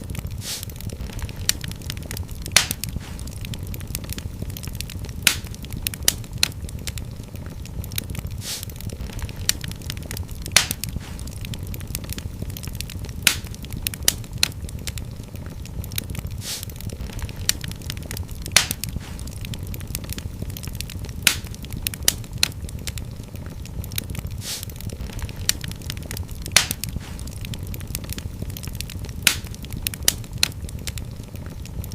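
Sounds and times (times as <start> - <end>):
fire crackling and popping: 0.0 - 31.9
low rumble of flames: 0.0 - 31.9
short hiss: 0.4 - 0.7, 8.4 - 8.7, 16.4 - 16.7, 24.4 - 24.7.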